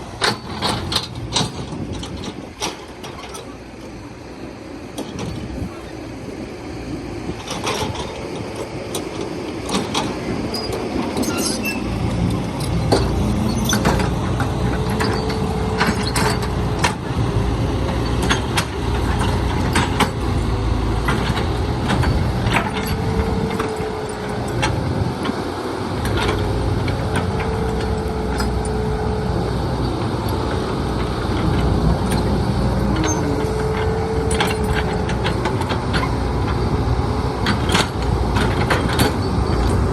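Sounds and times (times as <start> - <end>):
heavy diesel engine running: 0.0 - 39.9
metallic clanks and knocks: 31.0 - 36.2.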